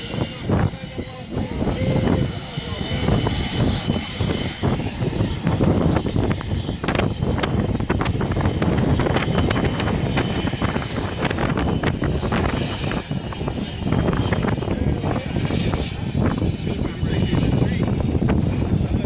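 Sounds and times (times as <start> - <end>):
aircraft engine whine: 0.0 - 19.0.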